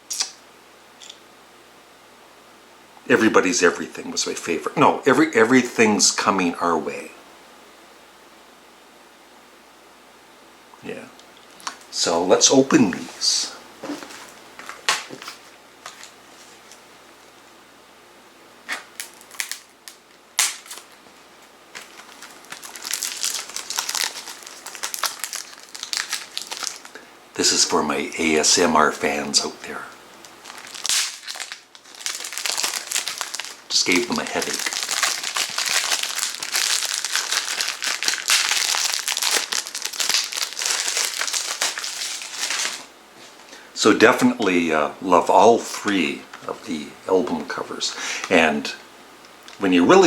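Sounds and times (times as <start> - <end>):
plastic wrap crinkling: 13.8 - 16.8, 18.6 - 27.1, 28.3 - 42.9.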